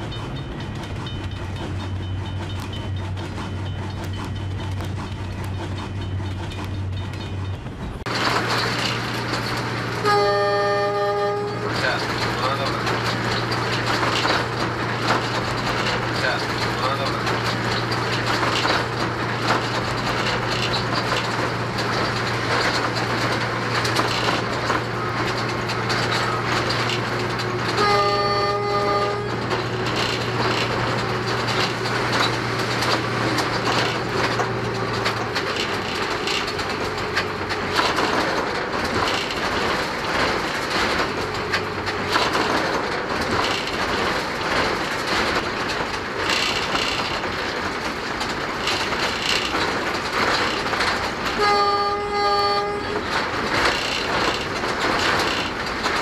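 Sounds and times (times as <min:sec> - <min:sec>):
train rushing noise: 0:00.0 - 0:56.0
wheels clicking over rail joints: 0:00.0 - 0:56.0
locomotive horn: 0:10.0 - 0:12.0, 0:27.5 - 0:29.9, 0:51.3 - 0:53.2.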